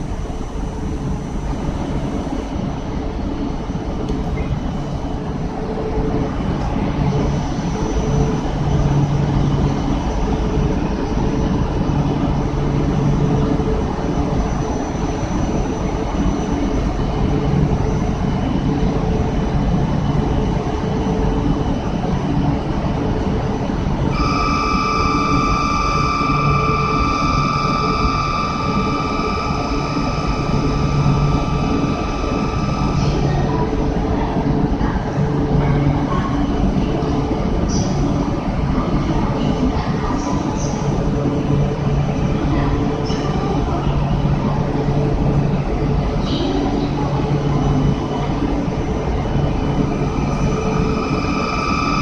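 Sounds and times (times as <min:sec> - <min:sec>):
faint steady tones: 0:00.0 - 0:38.2, 0:38.8 - 0:52.0
train equipment hum and rush: 0:00.0 - 0:52.0.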